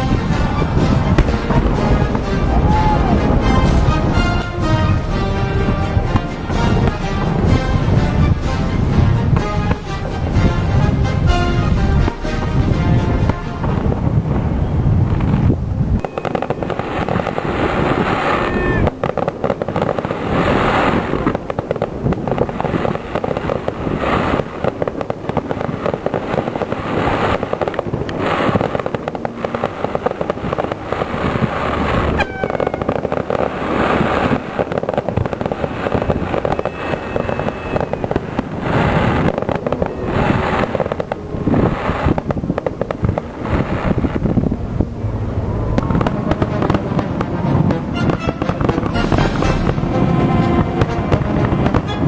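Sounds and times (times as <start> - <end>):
fireworks bangs and crackling: 0.0 - 52.0
falling firework whistle: 2.4 - 3.3, 16.0 - 21.6, 22.4 - 42.4.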